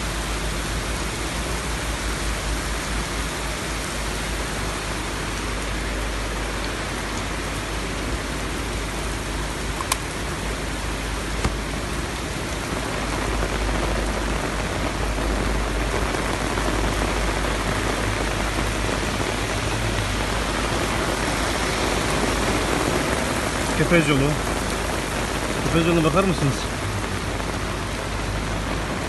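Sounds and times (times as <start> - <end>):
heavy rain pouring: 0.0 - 29.0.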